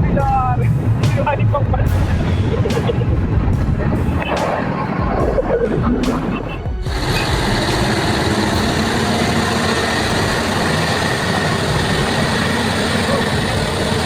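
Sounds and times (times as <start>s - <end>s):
truck engine roaring: 0.0s - 14.0s.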